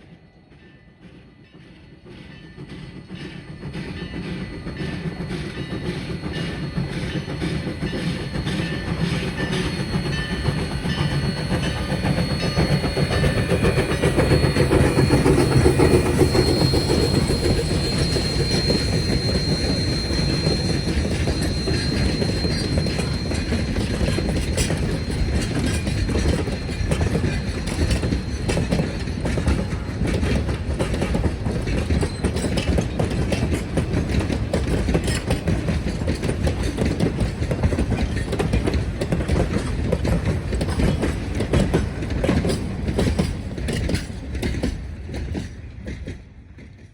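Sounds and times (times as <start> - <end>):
train wheels clicking over rail joints: 1.0 - 46.9.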